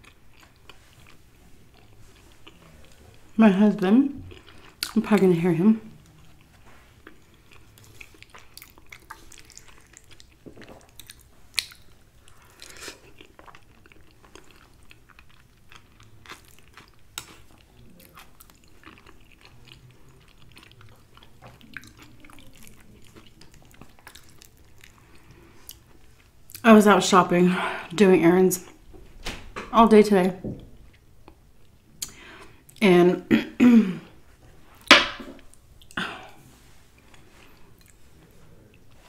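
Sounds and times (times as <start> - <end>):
person chewing with wet mouth sounds: 0.0 - 3.4, 4.1 - 26.6, 34.7 - 39.0.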